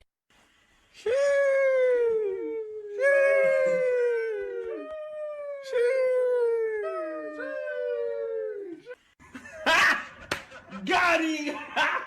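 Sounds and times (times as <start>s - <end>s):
dog howling: 1.5s - 9.0s.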